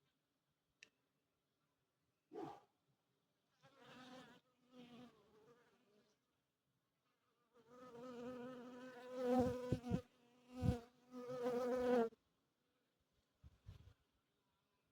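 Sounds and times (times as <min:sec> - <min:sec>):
bee buzzing: 0:07.9 - 0:12.1.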